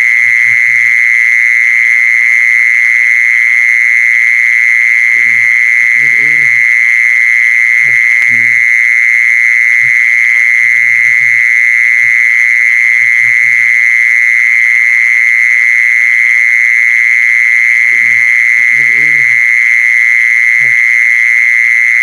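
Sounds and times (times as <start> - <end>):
faint low croaks: 5.0 - 6.9, 7.8 - 8.8, 17.8 - 19.5.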